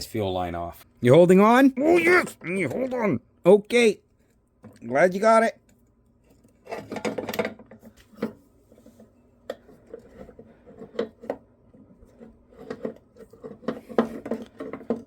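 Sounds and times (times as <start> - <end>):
scraping on rubber fuel line: 7.8 - 15.0.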